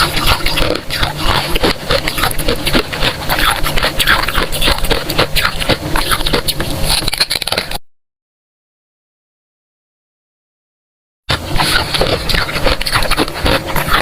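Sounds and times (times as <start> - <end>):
crunching and chewing frost: 0.0 - 7.8, 11.3 - 14.0.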